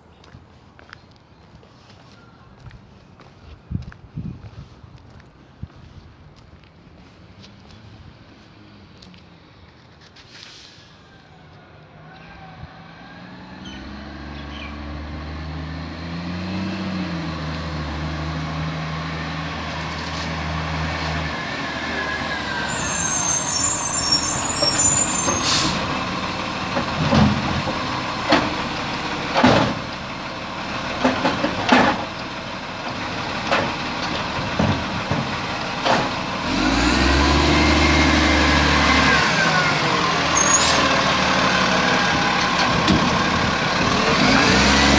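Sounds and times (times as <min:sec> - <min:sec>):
air brakes hissing: 0:10.3 - 0:11.2, 0:21.9 - 0:29.9, 0:40.3 - 0:41.0
garbage truck engine: 0:13.2 - 0:44.9
bin banging: 0:26.7 - 0:29.9, 0:30.9 - 0:32.2, 0:33.4 - 0:36.2.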